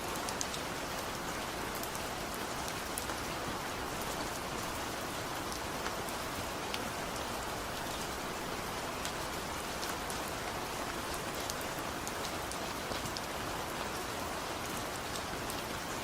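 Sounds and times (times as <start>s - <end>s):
steady rain hissing: 0.0s - 16.0s
close raindrop ticks: 0.1s - 1.1s.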